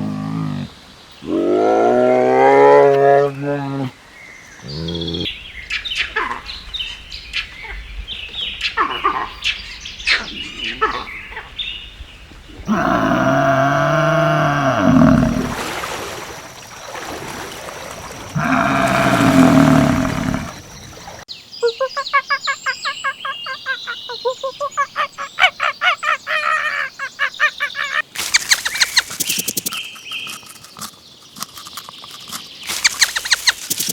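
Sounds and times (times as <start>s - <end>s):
drawn-out animal call: 18.4s - 21.0s
high chirps: 27.7s - 30.4s, 32.6s - 33.9s
animal clicks: 28.2s - 33.9s.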